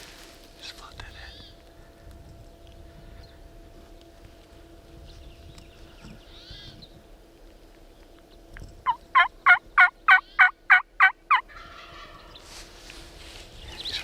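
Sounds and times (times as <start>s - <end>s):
turkey yelping: 8.9s - 12.2s.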